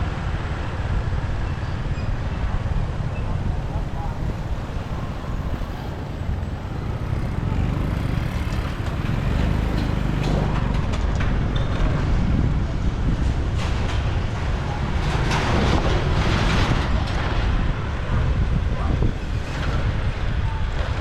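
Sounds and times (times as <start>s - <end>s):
road noise: 0.0s - 21.0s
motorcycle engine rumble: 2.4s - 15.0s.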